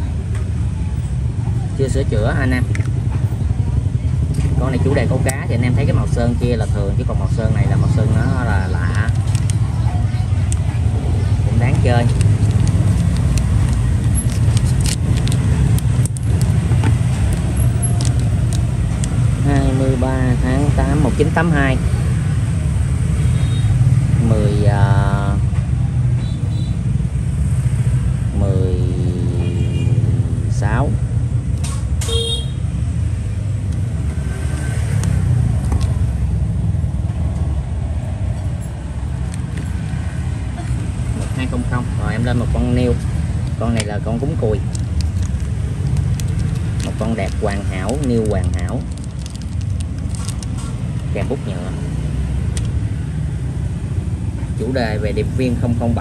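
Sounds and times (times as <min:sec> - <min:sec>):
steady low rumble: 0:00.0 - 0:21.2.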